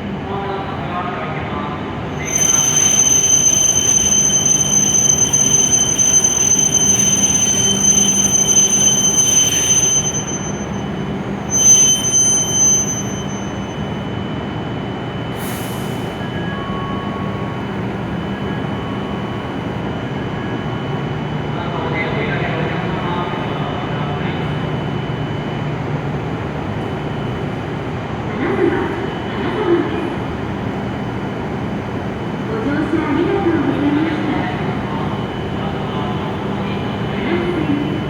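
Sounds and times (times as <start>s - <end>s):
high-pitched wheel and brake squeal: 2.2s - 14.0s.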